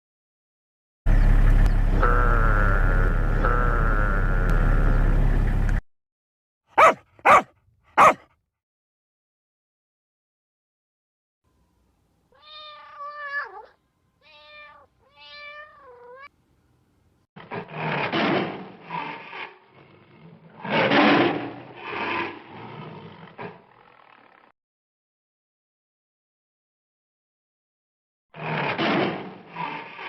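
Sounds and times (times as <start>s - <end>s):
rough noisy animal calls: 6.8s - 8.2s, 28.4s - 30.0s
cat meowing: 12.4s - 16.3s.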